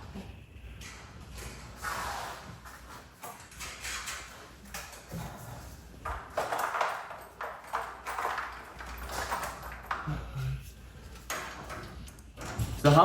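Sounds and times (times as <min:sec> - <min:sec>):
metallic knocks and clinks: 0:06.1 - 0:10.3.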